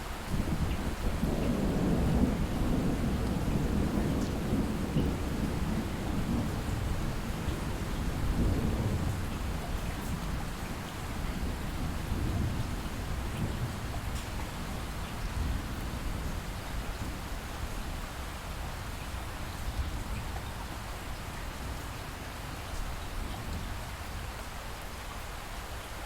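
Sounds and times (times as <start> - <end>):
light rain falling: 0.0 - 26.0
distant thunder rumble: 0.3 - 17.7.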